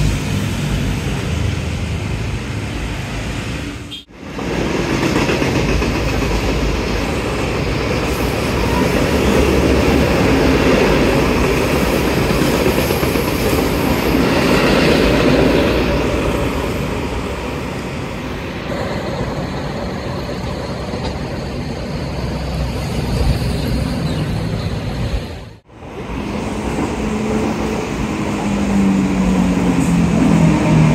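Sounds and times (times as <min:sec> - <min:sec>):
train wheels rumbling on rail: 0:00.0 - 0:30.9
train hiss: 0:06.1 - 0:10.4.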